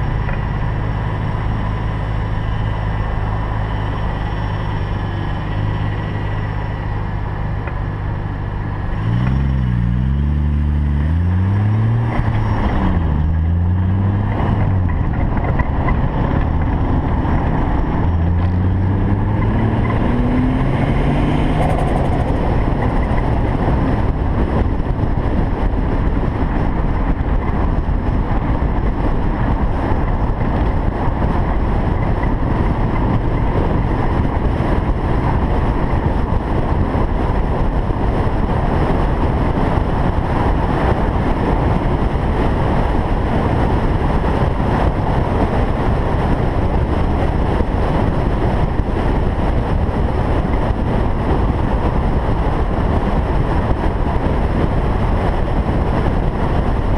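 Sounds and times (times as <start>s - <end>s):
car engine driving: 0.0s - 56.9s
road and wind noise: 0.0s - 56.9s.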